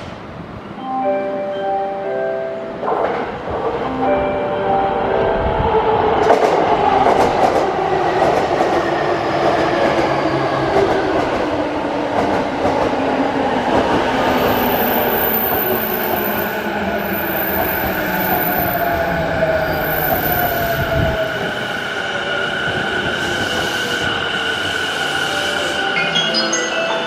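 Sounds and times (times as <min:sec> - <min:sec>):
electric train rumbling on rails: 0:00.0 - 0:27.0.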